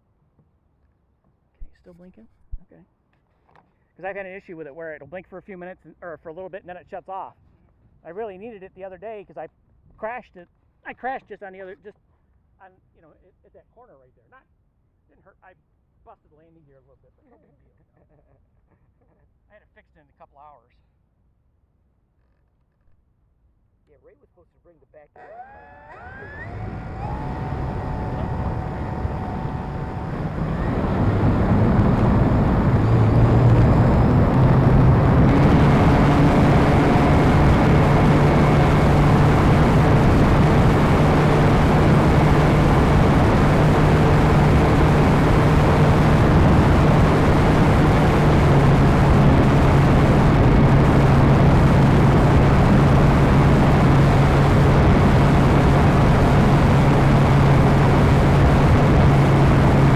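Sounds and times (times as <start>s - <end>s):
model airplane motor droning: 25.2s - 59.9s
rush of air noise: 26.1s - 59.9s.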